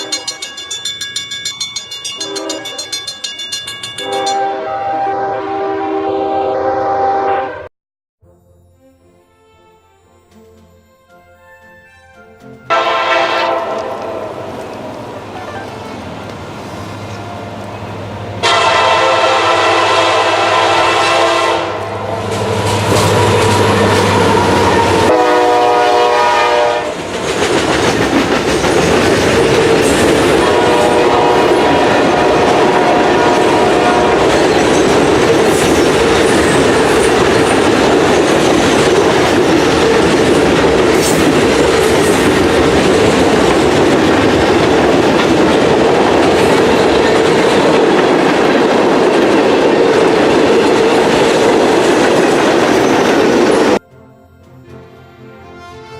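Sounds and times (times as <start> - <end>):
train passing with clickety-clack: 0.0 - 4.7, 12.1 - 53.8
locomotive air horn blasts: 2.2 - 2.8, 4.0 - 7.7, 12.7 - 14.4, 18.4 - 27.0, 30.4 - 34.4.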